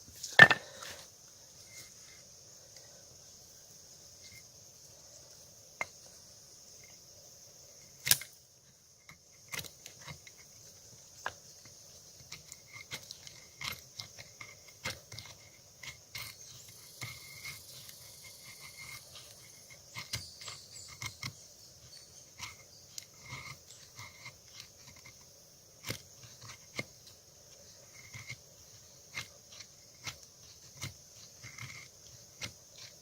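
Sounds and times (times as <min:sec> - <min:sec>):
crickets trilling: 0:00.0 - 0:33.0
sharp click: 0:08.0 - 0:08.3.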